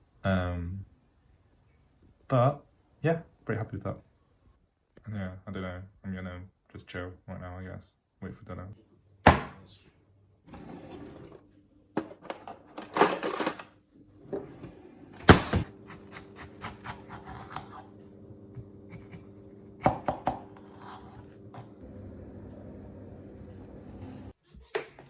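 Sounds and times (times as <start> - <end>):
steady low hum: 15.4 - 24.4.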